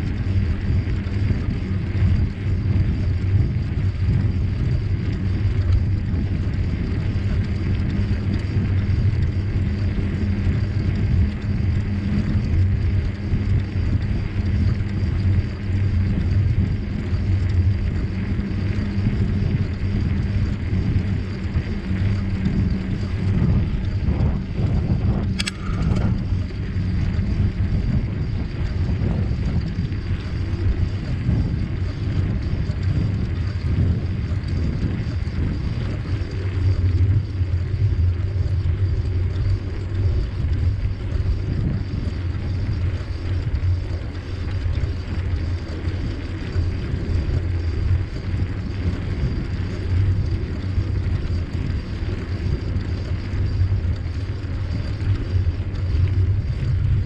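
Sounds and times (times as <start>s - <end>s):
bicycle tyres rumbling on trail: 0.0s - 57.0s
wind on microphone: 0.0s - 57.0s
sharp click: 25.2s - 26.1s.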